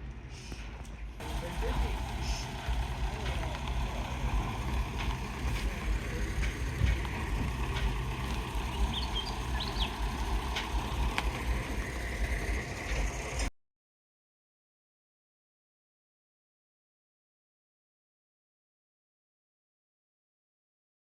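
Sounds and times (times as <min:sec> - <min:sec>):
truck engine and road rumble: 0:00.0 - 0:13.5.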